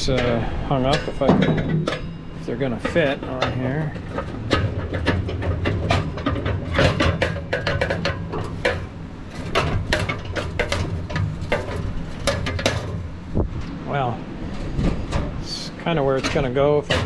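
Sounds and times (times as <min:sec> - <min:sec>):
heater humming: 0:00.0 - 0:17.0
metal clanks and knocks: 0:00.0 - 0:17.0.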